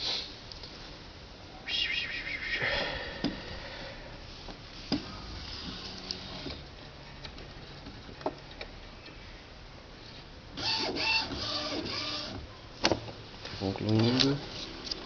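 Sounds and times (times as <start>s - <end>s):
printer motors whirring: 10.6s - 12.5s.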